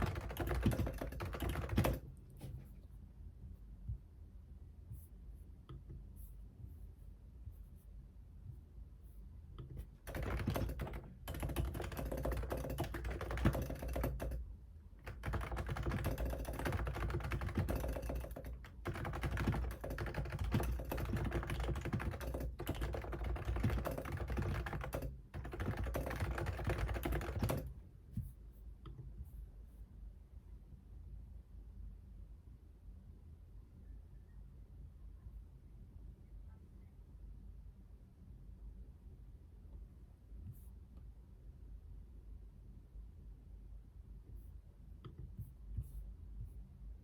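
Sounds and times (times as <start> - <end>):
fast typing on keyboard: 0.0 - 2.2, 9.8 - 14.4, 15.0 - 27.8.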